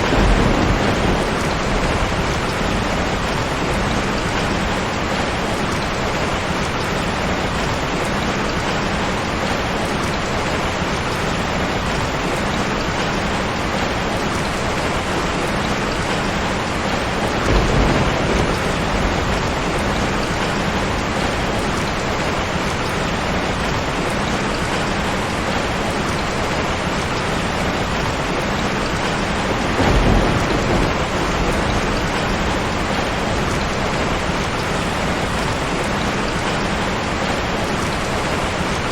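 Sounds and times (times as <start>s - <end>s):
low rumbles of thunder: 0.0s - 5.9s, 14.8s - 23.7s, 28.6s - 36.5s
rain pouring down: 0.0s - 38.9s.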